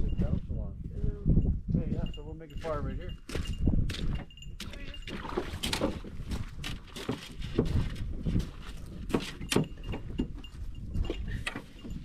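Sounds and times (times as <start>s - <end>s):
wind on microphone: 0.0s - 12.0s
footsteps on sand: 6.0s - 9.5s.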